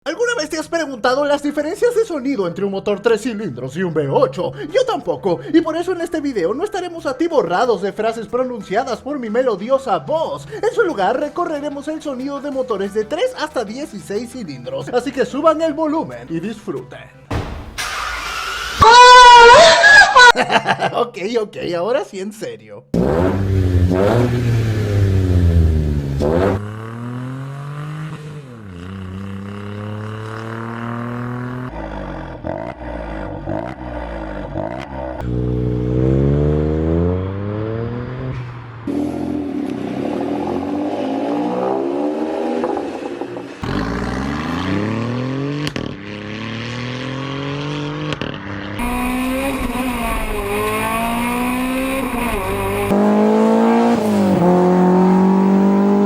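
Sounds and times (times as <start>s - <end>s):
car engines revving: 17.8s - 19.4s, 22.9s - 56.0s.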